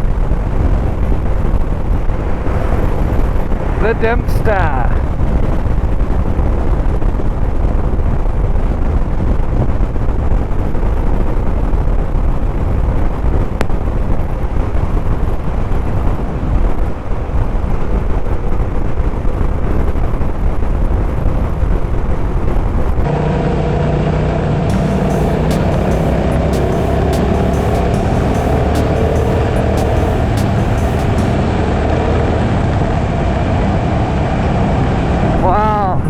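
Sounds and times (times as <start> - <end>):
wind rush: 0.0 - 18.7
motorcycle engine and road rumble: 23.1 - 34.9
music: 24.7 - 31.4.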